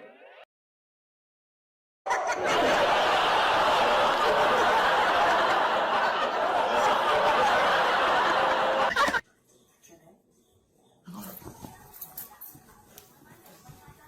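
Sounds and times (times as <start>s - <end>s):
group of people laughing: 2.1s - 9.2s.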